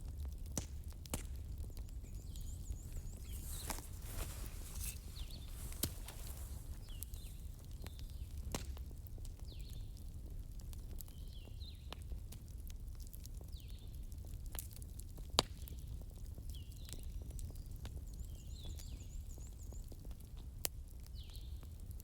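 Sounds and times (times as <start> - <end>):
campfire crackling and popping: 0.0 - 18.2
birds chirping: 1.8 - 8.2.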